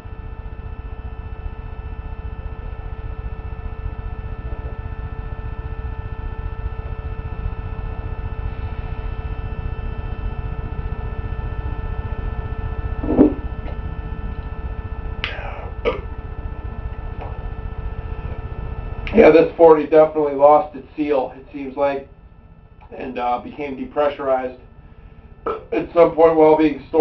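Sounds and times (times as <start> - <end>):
low hum and rumble: 0.0 - 27.0
breathy sounds: 15.2 - 16.0
man hiccup or gulp: 15.2 - 16.1, 25.5 - 25.8.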